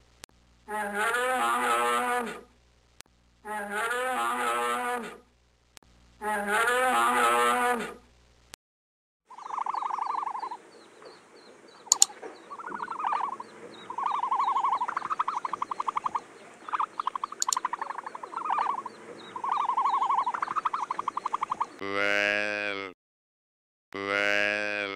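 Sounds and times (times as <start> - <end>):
bellowing animal call: 0.7 - 2.4, 3.5 - 5.2, 6.2 - 8.0, 9.3 - 10.6, 11.8 - 22.9, 24.0 - 24.9
trilled animal calls: 9.3 - 22.9
sharp clicks: 11.9 - 12.2, 17.0 - 17.9.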